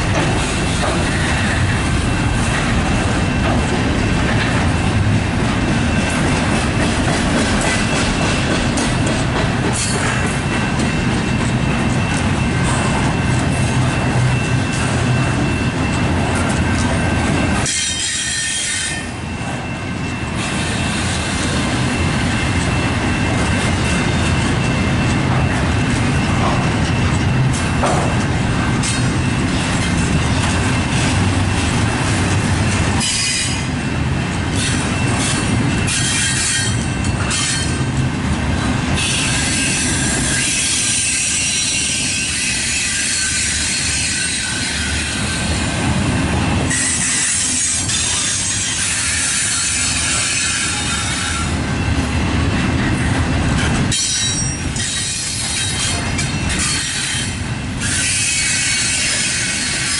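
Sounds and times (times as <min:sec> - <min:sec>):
steel wheels rumbling on rails: 0:00.0 - 0:59.9
high-pitched wheel squeal: 0:17.6 - 0:19.1, 0:53.9 - 0:59.9.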